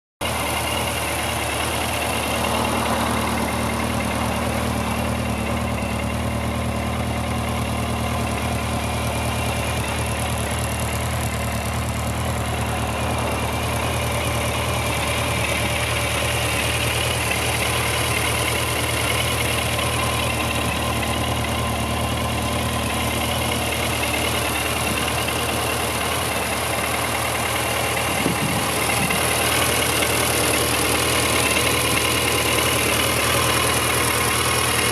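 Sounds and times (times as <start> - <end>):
motorcycle engine idling: 0.2 - 34.9.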